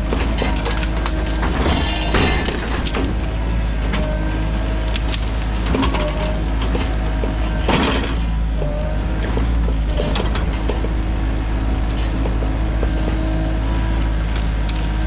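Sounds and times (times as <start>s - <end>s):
wood breaking: 0.0s - 3.5s, 4.3s - 8.1s, 13.6s - 15.0s
diesel engine running: 0.0s - 15.0s.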